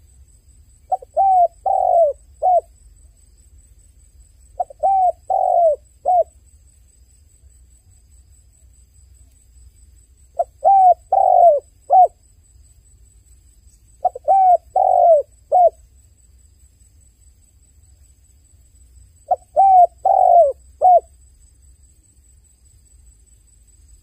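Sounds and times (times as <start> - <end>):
dove cooing: 0.9 - 2.7, 4.6 - 6.3, 10.4 - 12.2, 14.0 - 15.8, 19.3 - 21.1.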